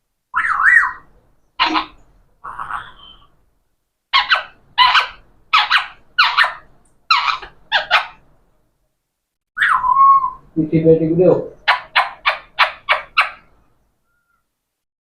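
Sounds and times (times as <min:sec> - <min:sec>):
parrot calling: 0:00.3 - 0:03.5, 0:04.1 - 0:08.3, 0:09.6 - 0:10.6, 0:11.4 - 0:14.5.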